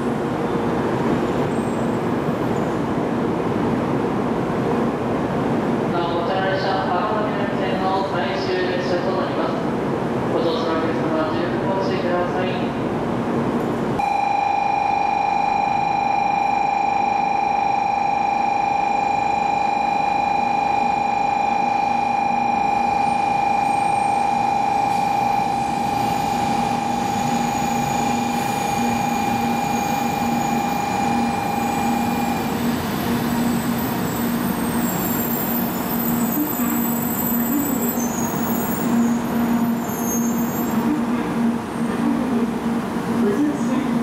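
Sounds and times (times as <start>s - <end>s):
train rolling to a stop: 13.6s - 44.0s
steady high-pitched tone: 14.0s - 44.0s.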